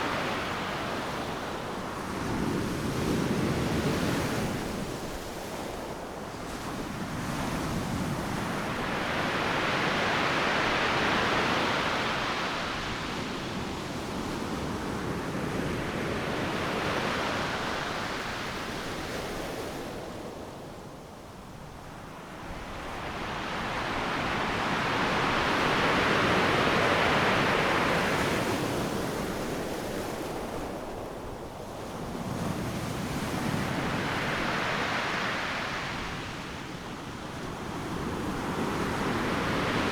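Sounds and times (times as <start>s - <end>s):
ocean waves crashing on shore: 22.3s - 39.9s.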